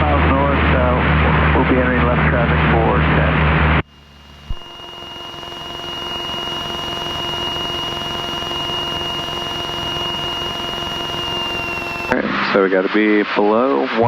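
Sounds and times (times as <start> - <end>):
electronic whine with tones: 3.7 - 14.0.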